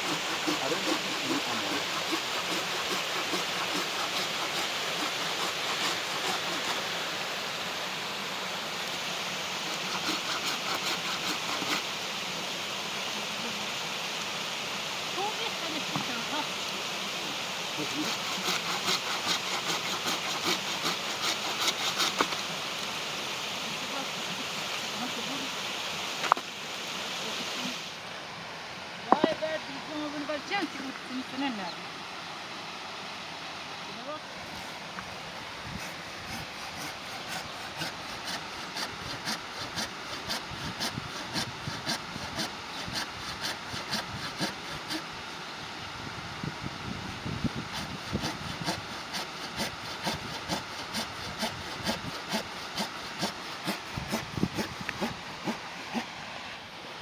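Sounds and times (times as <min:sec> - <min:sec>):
rhythmic rasping strokes: 0:00.0 - 0:07.0, 0:09.7 - 0:11.9, 0:17.8 - 0:22.4, 0:35.7 - 0:45.4, 0:47.4 - 0:56.1
steady rushing hiss: 0:00.0 - 0:57.0.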